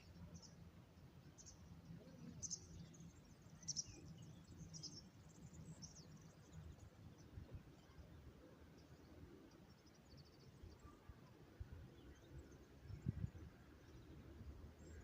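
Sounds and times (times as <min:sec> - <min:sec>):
small birds chirping: 0:00.0 - 0:11.1.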